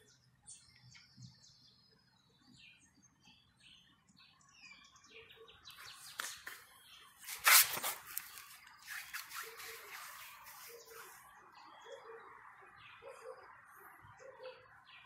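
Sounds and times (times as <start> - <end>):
small bird chirping: 0.0 - 15.0
rustling: 5.8 - 11.2.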